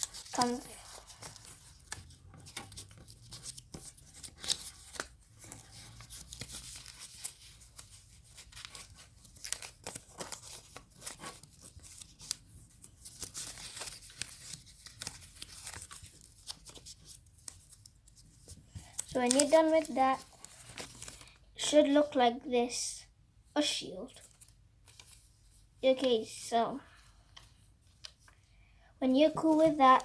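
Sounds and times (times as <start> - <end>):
paper rustling and crinkling: 0.0 - 21.4, 24.1 - 25.6.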